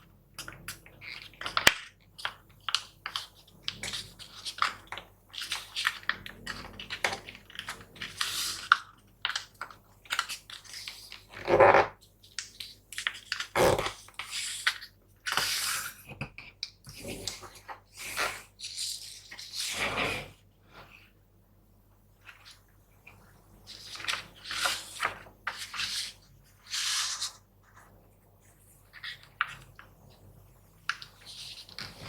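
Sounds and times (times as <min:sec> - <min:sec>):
paper rustling and crinkling: 0:02.6 - 0:11.4, 0:22.2 - 0:27.9, 0:30.9 - 0:32.0.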